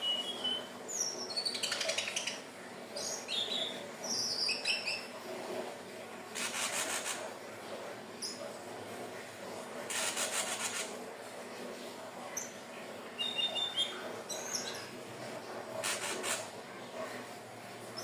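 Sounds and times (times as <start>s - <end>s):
buzzy bird rattle: 15.8s - 16.4s.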